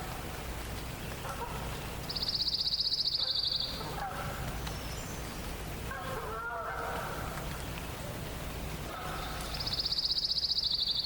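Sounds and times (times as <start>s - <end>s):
songbird trill: 0.8s - 8.2s, 8.8s - 11.0s
distant geese honking: 5.8s - 7.5s, 8.8s - 10.0s.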